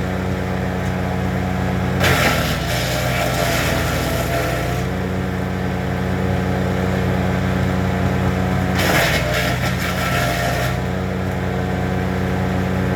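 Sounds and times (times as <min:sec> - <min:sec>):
wood chipper running: 0:00.0 - 0:12.9
wood being chipped: 0:02.0 - 0:04.9, 0:08.7 - 0:10.9.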